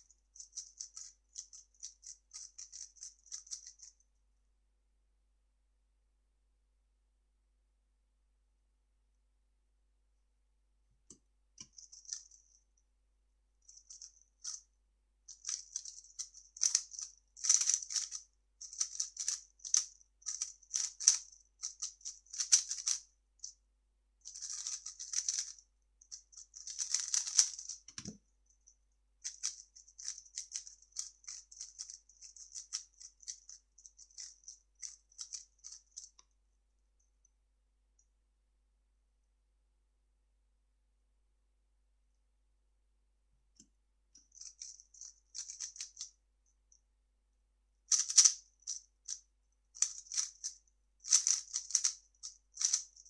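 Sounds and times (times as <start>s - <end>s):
plastic puzzle cube clicking: 26.6s - 28.2s, 51.1s - 52.0s.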